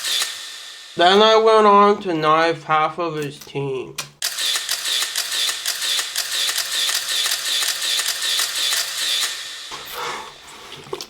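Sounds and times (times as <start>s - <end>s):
rapid mechanical clicking: 4.0s - 9.6s.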